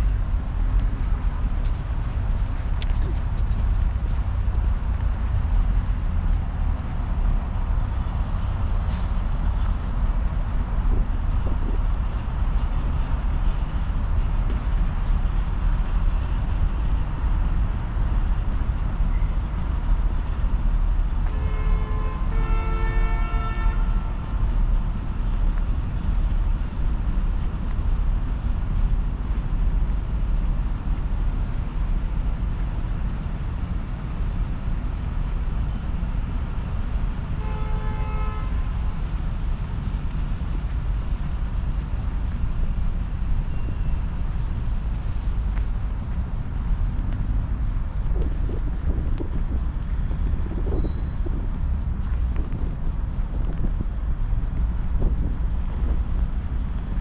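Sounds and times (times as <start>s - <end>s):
wind buffeting microphone: 0.0s - 21.5s, 38.3s - 57.0s
city traffic rumble: 0.0s - 57.0s
vehicle horn toots: 21.2s - 24.2s, 37.4s - 38.7s.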